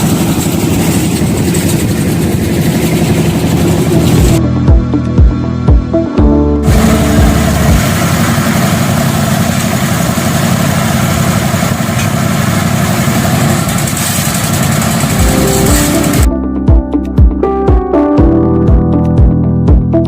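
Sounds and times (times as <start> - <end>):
engine running with rattle: 0.0 - 5.9, 6.6 - 16.3
music beats: 3.1 - 8.6, 14.9 - 20.0.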